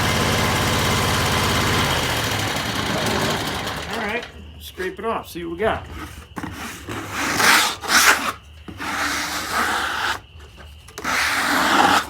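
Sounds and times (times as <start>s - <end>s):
rasping scrapes on wood: 6.0s - 10.3s, 11.0s - 12.0s.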